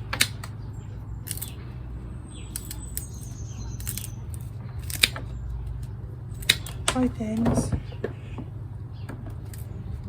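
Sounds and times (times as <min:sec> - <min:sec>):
blade snipping stems: 0:01.2 - 0:01.6, 0:02.5 - 0:03.2, 0:03.8 - 0:07.6.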